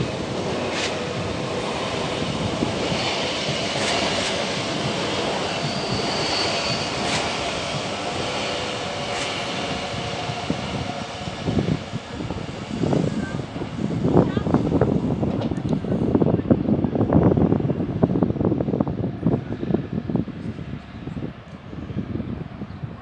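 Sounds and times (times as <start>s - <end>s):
high-pitched squeal: 0.0s - 13.5s
rough gusts of noise: 0.0s - 23.0s
train wheels rumbling on rails: 0.0s - 23.0s.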